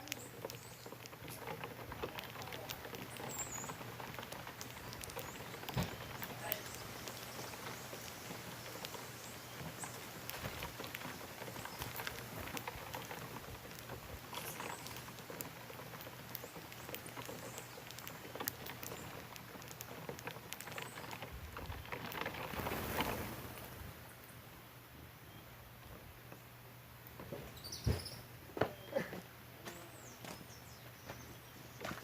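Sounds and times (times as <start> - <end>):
birds pecking at grains: 0.0 - 32.0.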